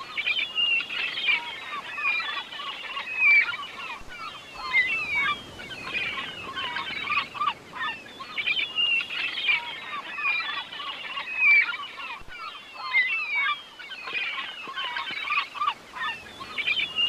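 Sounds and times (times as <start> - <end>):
flock of birds chirping: 0.0 - 17.0.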